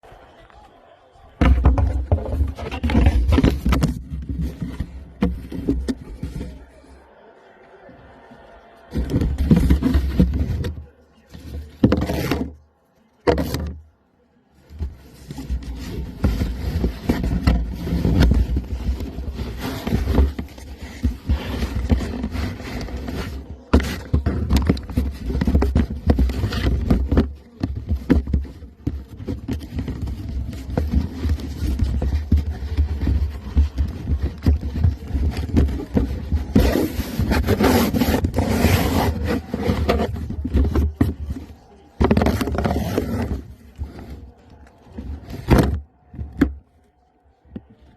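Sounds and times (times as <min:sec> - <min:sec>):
dogs chewing cardboard: 0:15.0 - 0:41.2.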